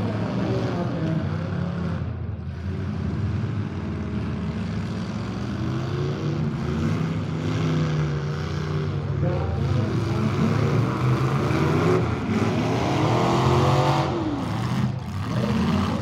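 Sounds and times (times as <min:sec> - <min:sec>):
car engines revving together: 0:00.0 - 0:16.0.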